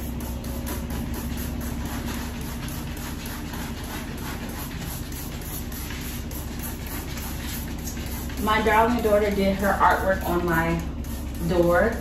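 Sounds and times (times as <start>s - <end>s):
cloth scrubbing hard surface: 0.7s - 8.8s.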